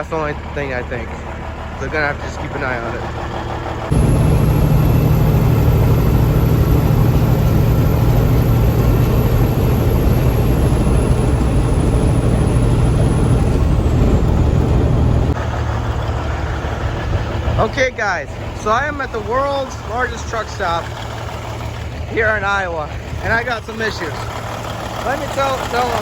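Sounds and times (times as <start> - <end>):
diesel truck engine rumble: 0.0 - 26.0
faint high whine: 3.9 - 13.8.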